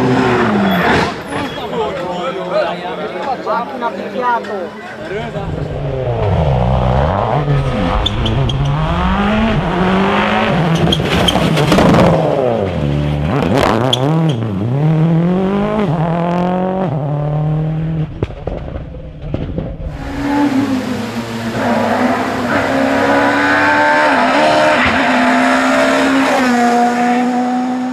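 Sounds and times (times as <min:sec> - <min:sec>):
rally car engine revving: 0:00.0 - 0:02.1, 0:05.0 - 0:27.9
exhaust cracks: 0:05.3 - 0:14.6, 0:17.9 - 0:20.3.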